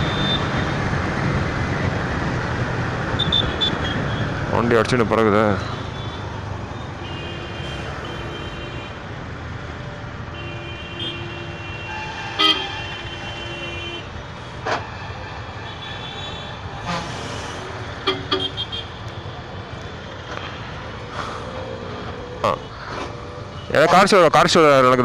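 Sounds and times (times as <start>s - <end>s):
vehicle horns honking: 0.0s - 0.8s, 3.2s - 4.3s, 5.8s - 9.0s, 10.3s - 14.1s, 15.6s - 19.0s
traffic rumble: 0.0s - 25.0s.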